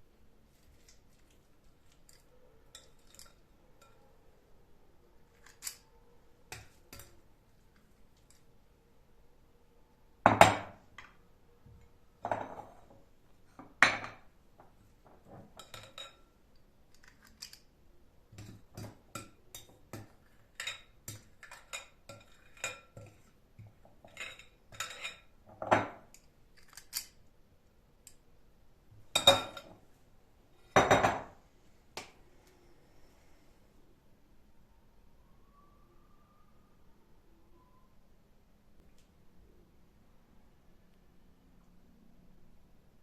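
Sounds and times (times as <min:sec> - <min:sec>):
dishes and cutlery clinking: 0:02.0 - 0:04.0, 0:15.2 - 0:16.3, 0:18.4 - 0:27.1, 0:29.1 - 0:29.8.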